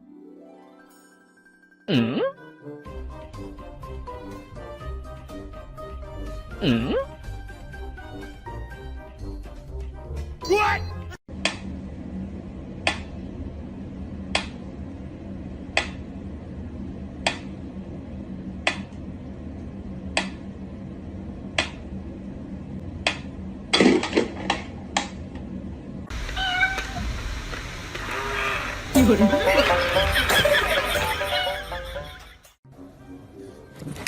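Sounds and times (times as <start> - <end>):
steady low hum: 11.3 - 26.4
cat meow: 26.2 - 27.1.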